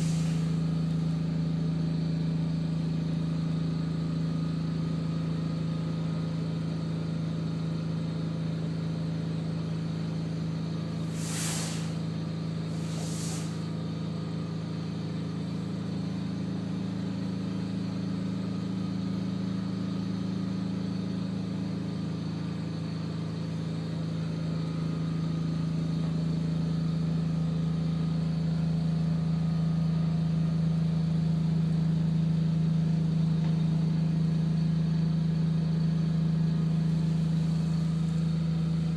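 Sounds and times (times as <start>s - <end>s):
short hisses: 0.0s - 0.7s, 11.0s - 12.1s, 12.7s - 13.8s
engine idling: 0.0s - 38.9s.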